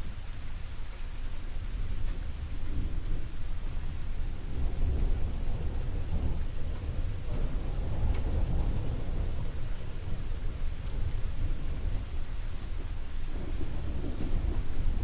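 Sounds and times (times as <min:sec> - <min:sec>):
steady rain falling: 0:00.0 - 0:15.0
deep rumble: 0:01.7 - 0:15.0
faint drip ticks: 0:04.8 - 0:15.0.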